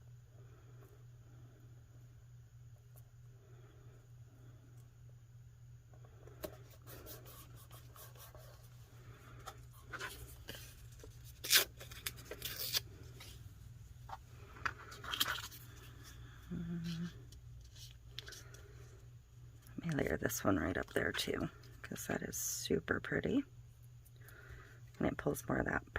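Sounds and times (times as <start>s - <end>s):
paper rustling and crinkling: 6.4s - 13.4s, 14.0s - 16.1s.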